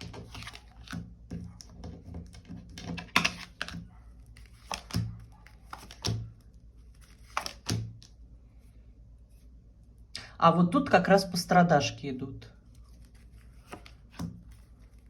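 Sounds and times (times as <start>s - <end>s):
cards clicking and tapping on table: 0.0s - 3.9s, 4.6s - 6.4s, 7.2s - 8.1s, 13.7s - 14.5s.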